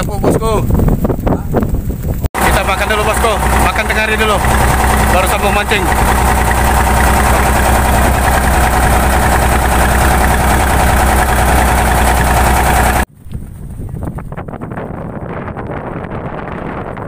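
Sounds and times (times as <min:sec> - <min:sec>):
wind noise on microphone: 0:00.0 - 0:02.7, 0:05.8 - 0:17.0
boat engine idling: 0:02.4 - 0:13.1.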